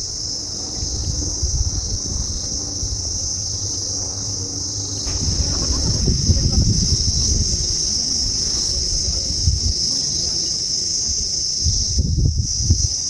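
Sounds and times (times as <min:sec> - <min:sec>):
low rumble: 0:05.1 - 0:07.8.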